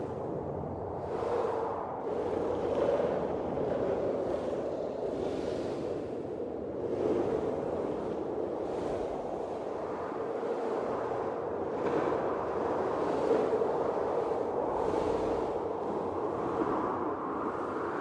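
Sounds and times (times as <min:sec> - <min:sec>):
blizzard wind blowing in gusts: 0:00.0 - 0:18.0.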